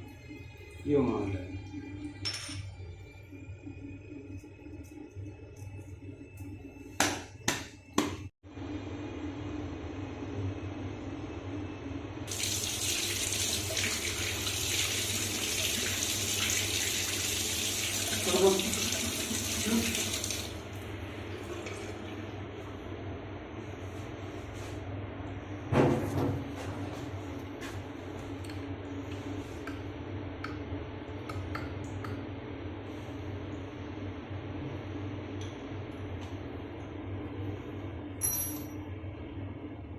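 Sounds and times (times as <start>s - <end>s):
tap water running into basin: 12.3s - 20.8s, 21.4s - 22.2s
steady low hum: 20.5s - 39.9s.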